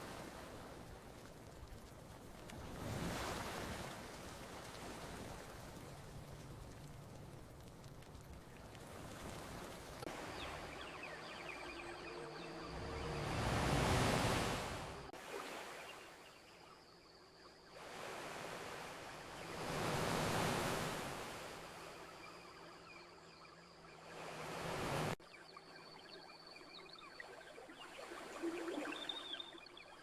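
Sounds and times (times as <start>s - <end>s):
ocean waves washing onto beach: 0.0s - 16.2s, 17.8s - 22.4s, 24.0s - 25.2s.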